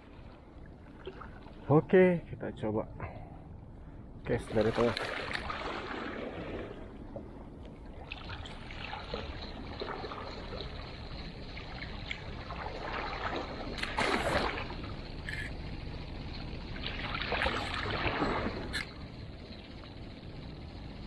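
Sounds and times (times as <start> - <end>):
water splashing at shore: 4.3 - 7.3, 7.9 - 15.1, 16.8 - 19.0.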